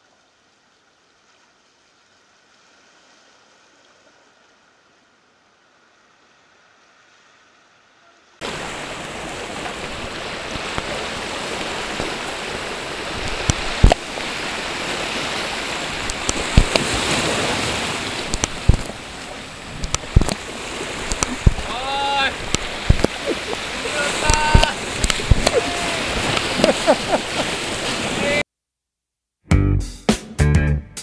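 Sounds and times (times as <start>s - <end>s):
surf washing over rocks: 8.4s - 28.4s
sharp knocks: 21.1s - 21.7s, 22.4s - 23.2s, 24.3s - 25.6s.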